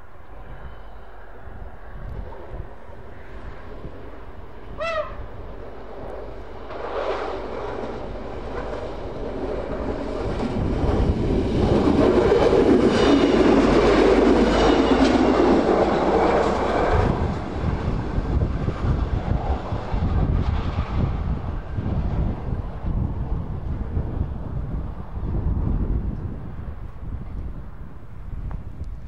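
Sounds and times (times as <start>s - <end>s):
train rumble and wheel clatter: 0.0s - 29.0s
wheels ringing on rails: 6.6s - 17.8s.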